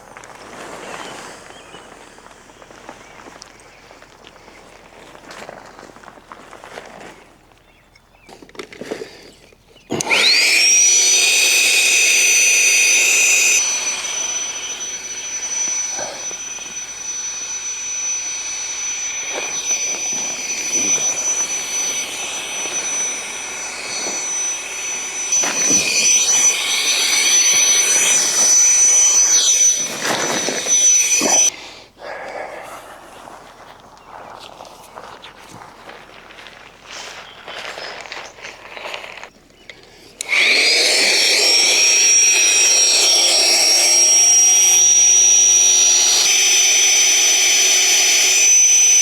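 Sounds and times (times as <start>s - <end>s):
electric air pump whining: 9.9s - 31.6s, 40.2s - 49.0s.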